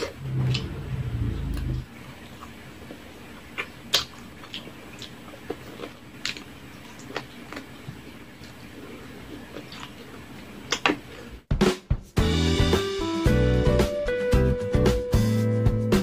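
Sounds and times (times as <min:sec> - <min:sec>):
chewing ribs: 0:00.0 - 0:11.4.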